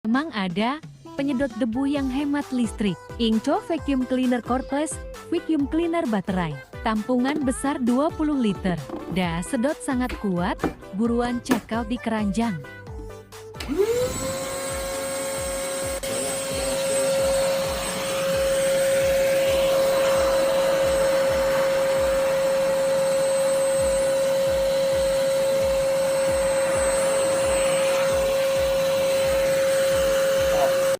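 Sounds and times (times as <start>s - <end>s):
vacuum cleaner motor whine: 13.6s - 30.9s.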